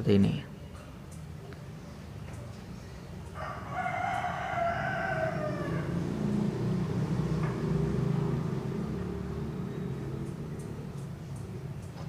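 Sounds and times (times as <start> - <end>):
low vehicle engine rumble: 1.4 - 12.0
rooster crowing: 3.3 - 7.0.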